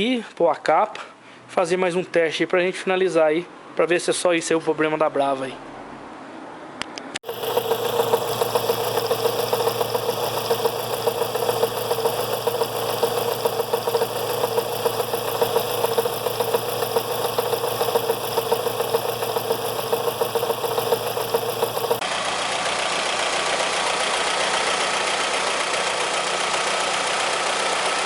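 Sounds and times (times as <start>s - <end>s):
steady hum: 7.2s - 22.0s
car engine idling: 7.2s - 28.0s.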